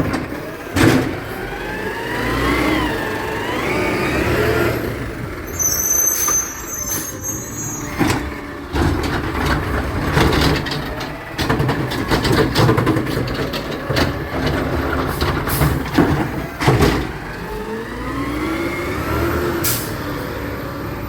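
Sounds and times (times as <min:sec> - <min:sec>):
garbage truck engine rumbling: 0:00.0 - 0:21.0
high squeal: 0:05.4 - 0:08.3.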